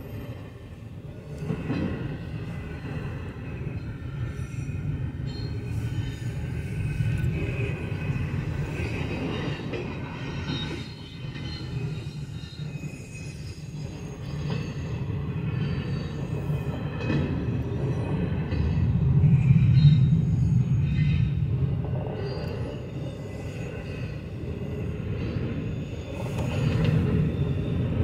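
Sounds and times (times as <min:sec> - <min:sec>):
freight train rumbling: 0:00.0 - 0:28.0
faint wheel squeal: 0:04.0 - 0:16.9, 0:22.1 - 0:28.0.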